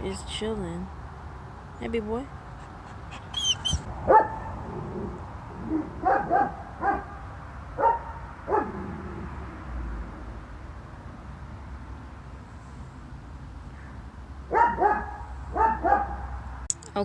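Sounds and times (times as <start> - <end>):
dog barking: 3.2 - 4.6, 5.7 - 7.2, 7.8 - 8.8, 14.5 - 16.4.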